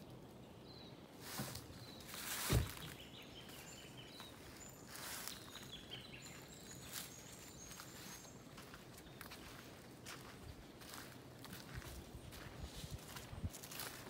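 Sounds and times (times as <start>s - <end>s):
small birds calling: 0.0s - 14.0s
dull thump: 2.4s - 3.0s.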